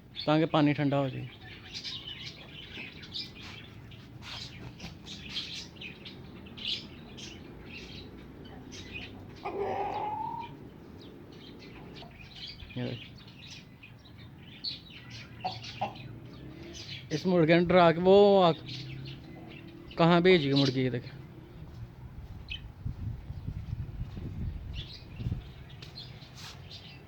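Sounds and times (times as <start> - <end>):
caged birds chirping: 0.0 - 27.0
loud rising bird call: 8.9 - 10.6.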